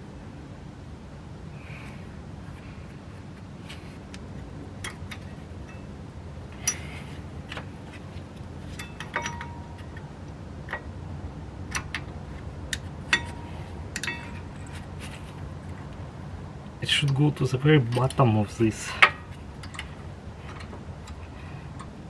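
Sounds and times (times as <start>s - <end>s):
low steady hum: 0.0s - 22.0s
metal brake clips clicking: 6.6s - 6.9s, 8.7s - 10.9s, 11.7s - 14.7s, 19.0s - 22.0s.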